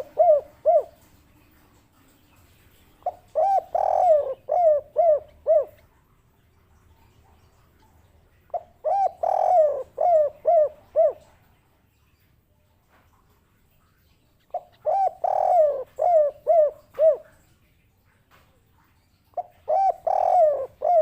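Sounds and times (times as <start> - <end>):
dove cooing: 0.0 - 1.6, 2.5 - 6.0, 8.4 - 11.5, 14.5 - 17.5, 19.4 - 21.0.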